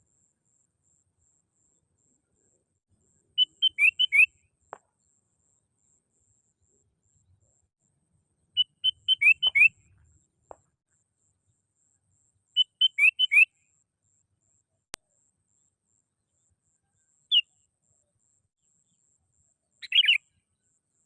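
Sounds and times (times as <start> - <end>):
bulbul whistled song: 3.4 - 4.4, 8.6 - 10.0, 12.6 - 13.6, 19.8 - 20.3.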